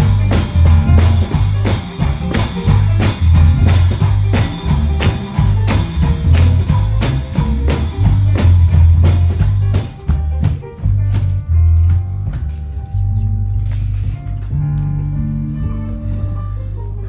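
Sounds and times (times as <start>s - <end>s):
tambourine: 0.0s - 12.8s
drum kit: 0.0s - 16.0s
bass: 0.0s - 17.0s
guitar: 0.0s - 17.0s.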